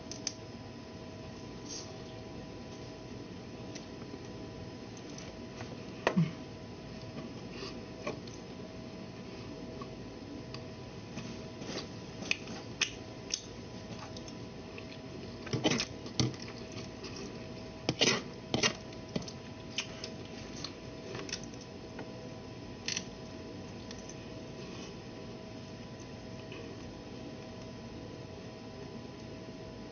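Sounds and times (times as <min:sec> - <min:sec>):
faint steady hum: 0:00.0 - 0:29.9
chewing and mouth smacks: 0:12.3 - 0:15.8.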